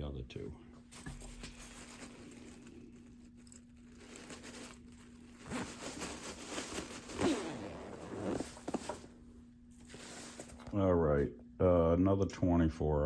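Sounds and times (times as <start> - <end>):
faint steady hum: 0.0 - 13.0
zipper being pulled: 5.4 - 9.0.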